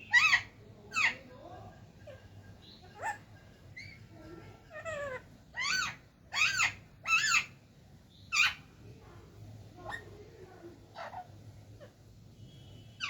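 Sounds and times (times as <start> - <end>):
parrot calling: 0.0 - 1.3, 2.0 - 7.6, 8.3 - 8.7, 10.9 - 12.0.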